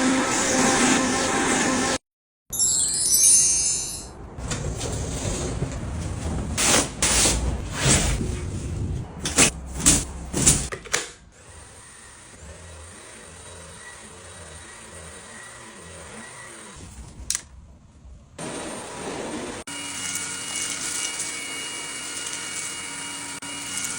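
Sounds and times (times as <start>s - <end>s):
vacuum cleaner running: 0.0s - 2.0s, 18.4s - 23.9s.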